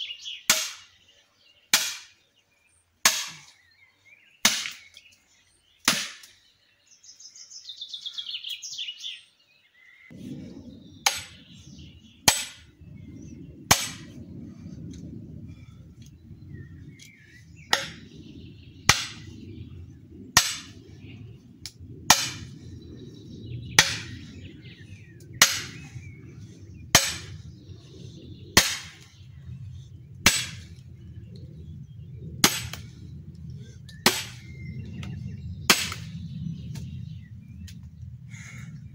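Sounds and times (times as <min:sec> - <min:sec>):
bird chirping: 0:00.0 - 0:14.4, 0:16.0 - 0:21.6, 0:22.4 - 0:38.9
low rumble: 0:10.1 - 0:38.9.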